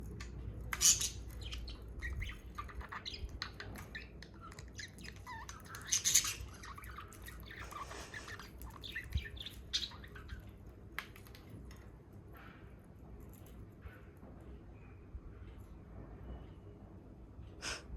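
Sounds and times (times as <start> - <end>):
budgies squawking and chirping: 0.0 - 10.6.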